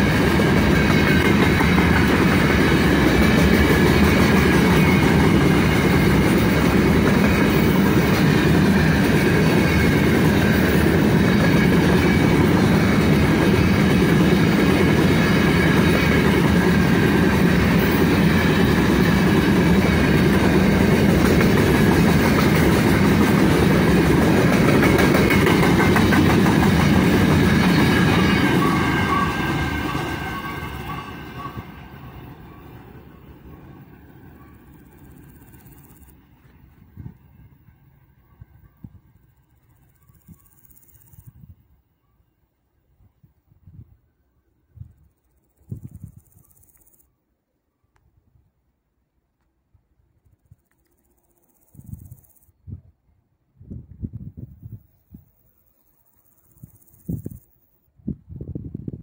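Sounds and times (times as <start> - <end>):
freight train wheels clickety-clack: 0.0 - 41.4.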